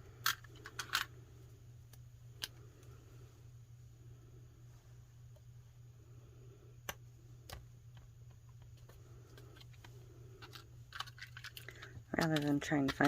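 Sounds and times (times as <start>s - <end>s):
steady low hum: 0.0s - 13.0s
craft pieces clicking on tabletop: 10.4s - 13.0s.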